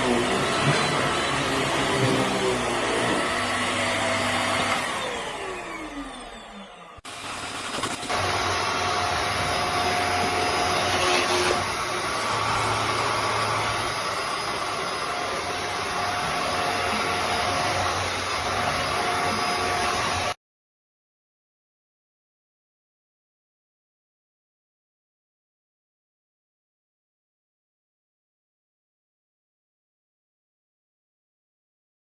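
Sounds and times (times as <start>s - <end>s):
vacuum cleaner whirring: 0.0s - 20.4s.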